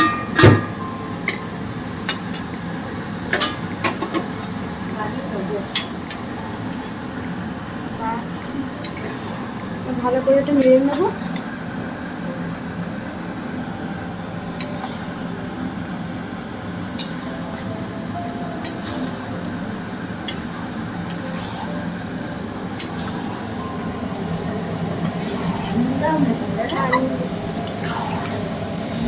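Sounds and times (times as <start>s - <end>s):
utensil clinking against pan: 0.0s - 1.5s
steady background noise: 0.0s - 29.0s.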